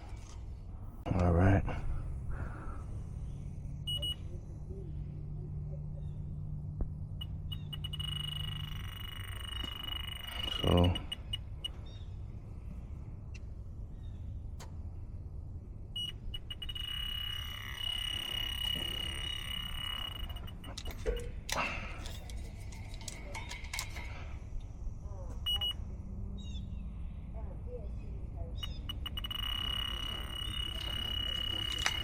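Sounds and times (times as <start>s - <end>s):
leak detector ticking: 7.1s - 12.0s, 16.0s - 21.6s, 28.6s - 32.0s
high alarm tone: 7.2s - 11.8s, 16.0s - 21.4s, 28.6s - 32.0s
clicks and handling noise: 16.4s - 24.3s, 28.6s - 32.0s.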